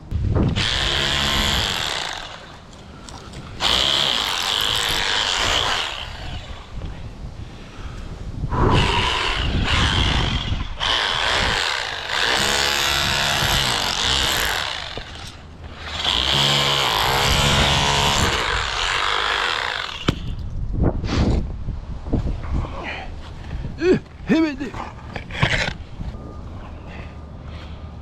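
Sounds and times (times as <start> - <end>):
power tool running under load: 0.6 - 2.6, 3.6 - 6.7, 8.8 - 20.3.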